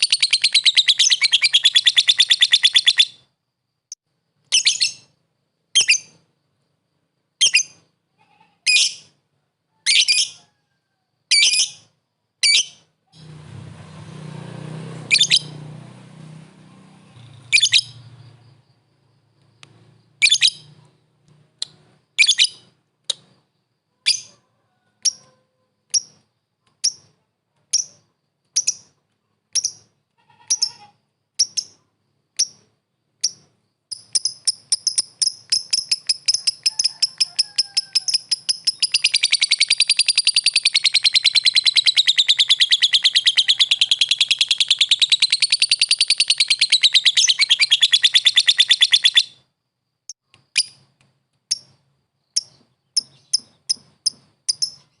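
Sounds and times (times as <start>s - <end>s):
lovebird chirping and chattering: 0.0s - 3.2s, 4.5s - 5.2s, 5.8s - 6.2s, 7.4s - 7.9s, 8.7s - 9.1s, 9.9s - 10.4s, 11.3s - 13.3s, 15.1s - 15.6s, 17.1s - 18.6s, 20.1s - 21.0s, 21.6s - 23.4s, 24.0s - 24.4s, 25.0s - 25.3s, 25.9s - 26.2s, 26.8s - 31.8s, 32.4s - 49.4s, 50.1s - 50.9s, 51.5s - 55.0s.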